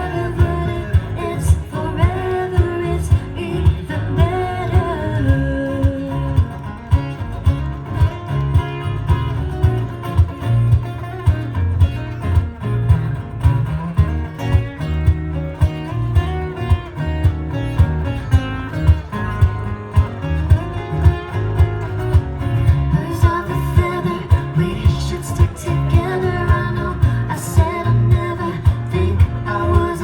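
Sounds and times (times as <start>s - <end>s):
person singing: 0.0s - 6.6s, 22.9s - 30.0s
acoustic guitar strumming: 0.0s - 30.0s
bass: 0.0s - 30.0s
steady drum beat: 0.0s - 30.0s.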